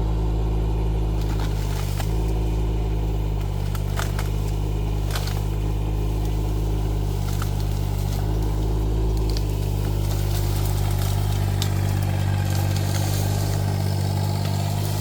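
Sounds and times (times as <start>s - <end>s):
excavator diesel engine running: 0.0s - 15.0s
short sharp cracks: 3.2s - 15.0s.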